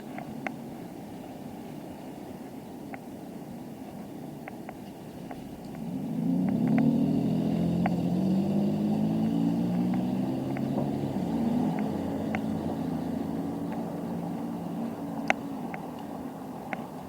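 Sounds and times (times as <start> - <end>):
faint high ticks: 4.4 - 17.0
vehicle engine running: 4.9 - 17.0.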